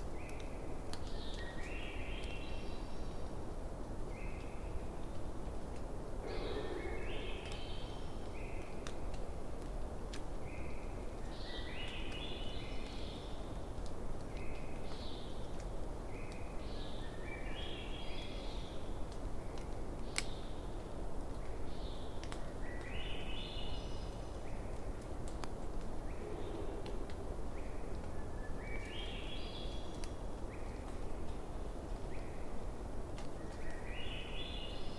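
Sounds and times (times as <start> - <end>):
steady low rush: 6.2 - 8.2, 25.9 - 28.6
bird song phrase: 6.2 - 8.6
wood fire crackling: 7.1 - 11.3, 18.4 - 23.0, 24.0 - 34.0.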